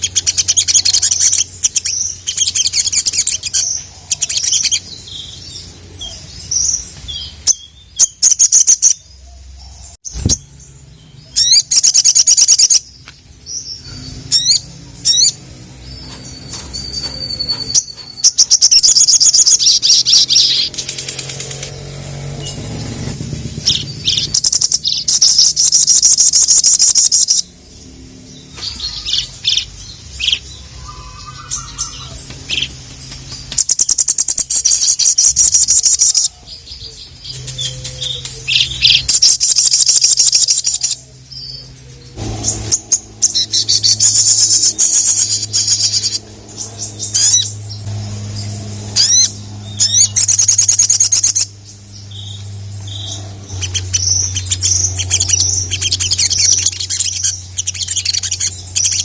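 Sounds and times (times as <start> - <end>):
bird chips: 0.0 - 9.0, 11.2 - 27.8, 28.4 - 59.0
low hum: 12.8 - 59.0.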